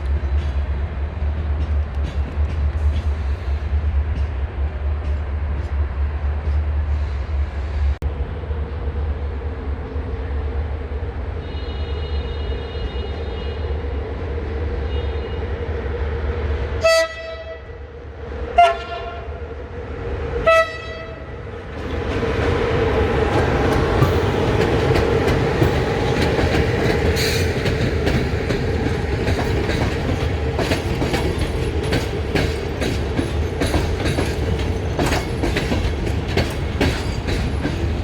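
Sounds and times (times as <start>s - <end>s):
low rail yard rumble: 0.0s - 38.0s
train rushing noise: 0.0s - 38.0s
train horn blasts: 11.4s - 13.8s, 14.8s - 15.6s, 16.8s - 17.8s, 18.6s - 19.4s, 20.4s - 21.4s.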